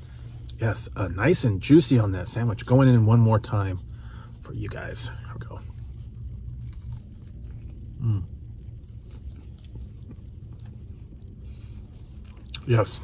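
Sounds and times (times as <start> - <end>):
low rumble inside car: 0.0 - 13.0
person chewing: 5.1 - 13.0
person humming mmm: 7.9 - 8.4.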